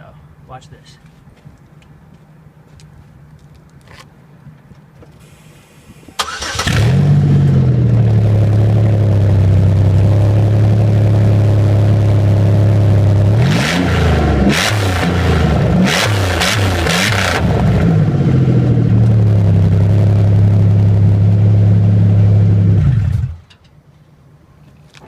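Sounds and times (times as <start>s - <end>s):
car engine starting and idling: 5.2s - 23.6s
car engine revving: 6.2s - 23.4s.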